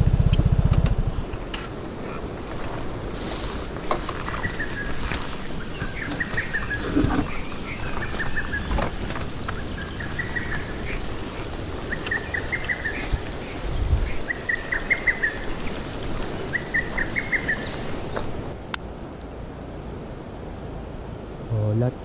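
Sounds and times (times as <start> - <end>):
high-pitched insect drone: 2.1 - 18.5.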